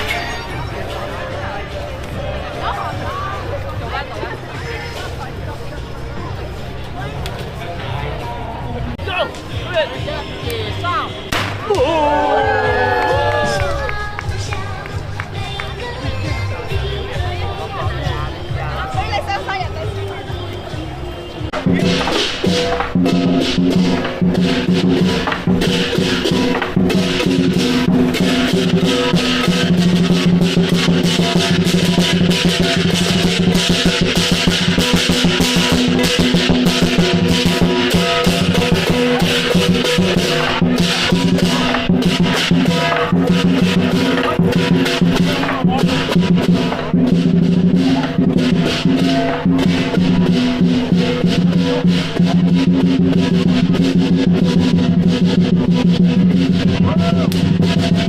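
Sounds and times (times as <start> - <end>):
drum roll: 21.5 - 58.0
clashing cymbals: 21.6 - 58.0.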